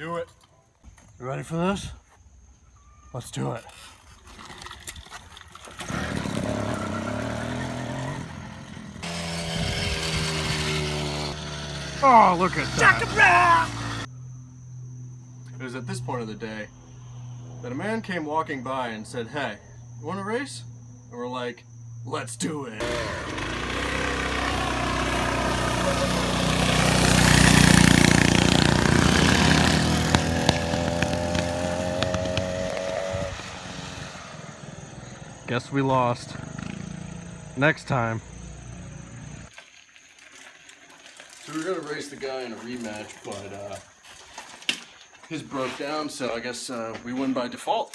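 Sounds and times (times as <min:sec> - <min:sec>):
small motorbike engine running: 0:05.7 - 0:14.1, 0:22.8 - 0:39.5.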